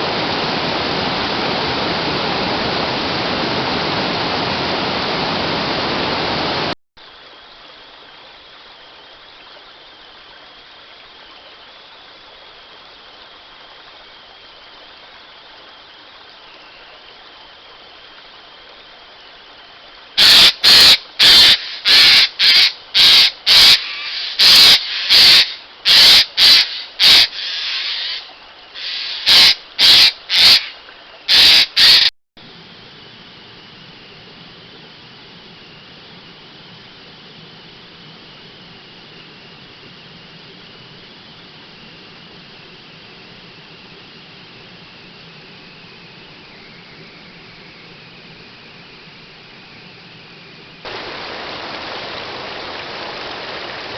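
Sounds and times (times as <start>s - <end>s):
rushing water: 0.0s - 32.1s, 50.8s - 53.9s
faint steady hiss: 0.0s - 53.9s
harsh short bird calls: 20.2s - 32.1s.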